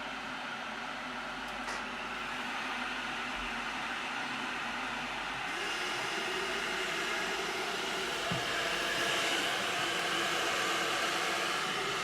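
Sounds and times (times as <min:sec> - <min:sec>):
electric kettle heating water: 0:00.1 - 0:12.0.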